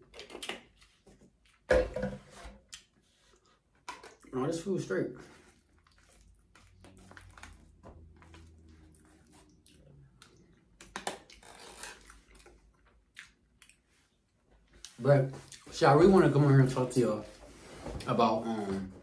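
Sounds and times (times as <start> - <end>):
quiet chewing: 5.2 - 15.7.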